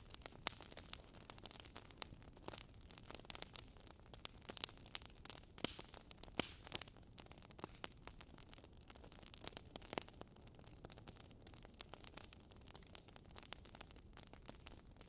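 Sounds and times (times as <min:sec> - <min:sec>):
faint low hiss: 0:00.0 - 0:15.0
wood fire crackling: 0:00.0 - 0:15.0.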